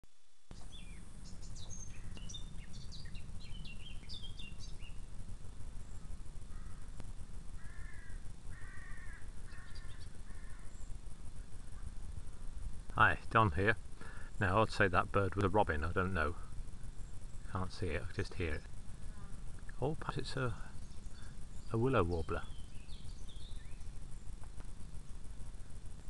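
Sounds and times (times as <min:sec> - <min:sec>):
steady low rumble: 0:00.1 - 0:26.0
songbird singing high notes: 0:00.5 - 0:05.1, 0:19.8 - 0:24.0
harsh bird call: 0:07.6 - 0:10.9.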